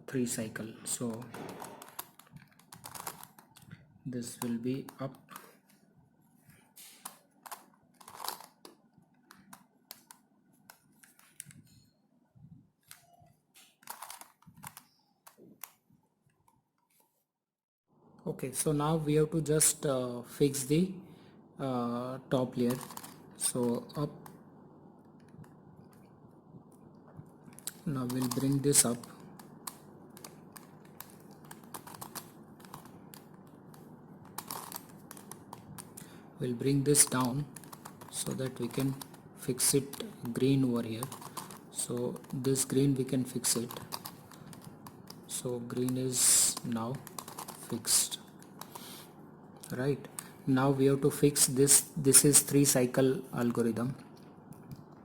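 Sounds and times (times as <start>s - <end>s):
puzzle cube pieces clicking: 1.0s - 3.7s, 7.0s - 10.2s, 13.9s - 15.8s, 22.7s - 24.3s, 27.6s - 36.0s, 36.9s - 48.9s.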